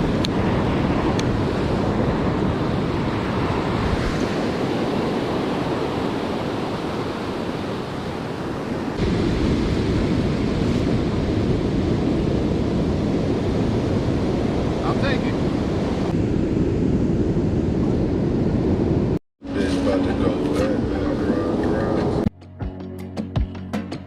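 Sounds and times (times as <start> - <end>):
wind buffeting the microphone: 0.0 - 19.2
ocean surf against rocks: 0.0 - 22.3.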